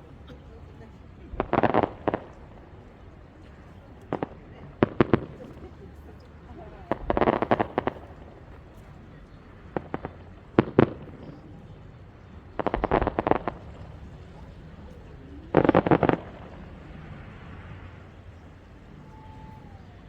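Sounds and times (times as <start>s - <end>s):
fireworks crackling: 0.0s - 20.0s
low steady rumble: 0.0s - 20.0s.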